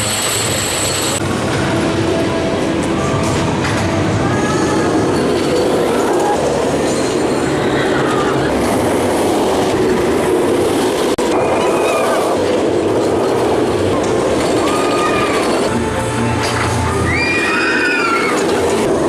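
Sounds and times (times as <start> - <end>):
roller coaster rushing on track: 0.0 - 19.0.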